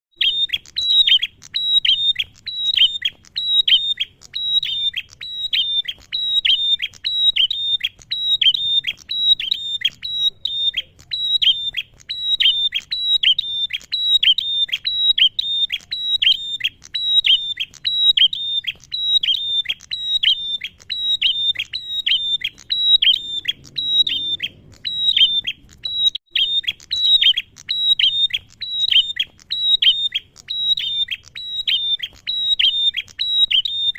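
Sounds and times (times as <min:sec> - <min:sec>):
bird chirping sharply: 0:00.2 - 0:33.9.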